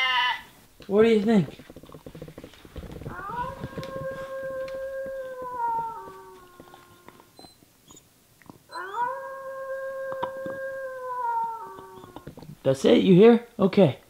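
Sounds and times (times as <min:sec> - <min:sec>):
dog howling: 0:03.0 - 0:07.4, 0:08.7 - 0:12.6.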